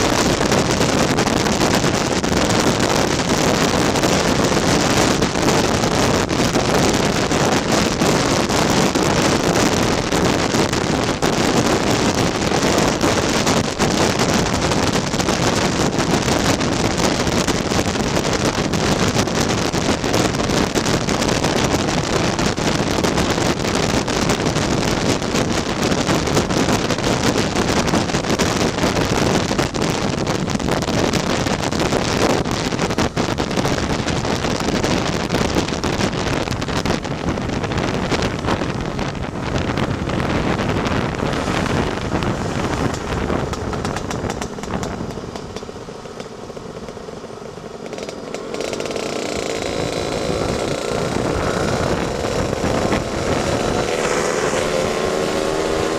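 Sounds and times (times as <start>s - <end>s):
wind rush on microphone: 0.0s - 55.9s
scooter engine running: 40.7s - 55.9s.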